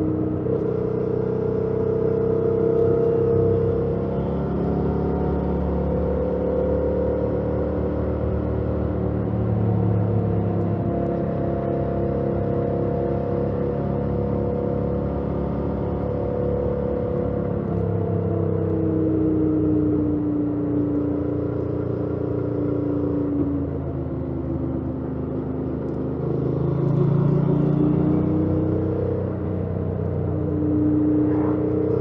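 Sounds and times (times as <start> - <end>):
motorcycle engine running: 19.2 - 32.0.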